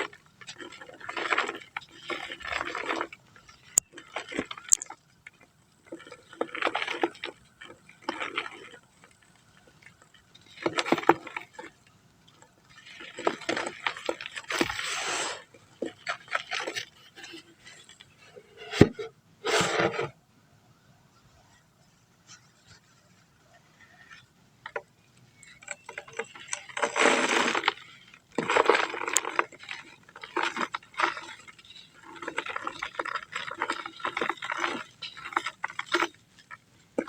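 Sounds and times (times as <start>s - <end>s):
dry dirt crunching: 0.0s - 19.1s, 22.3s - 37.0s.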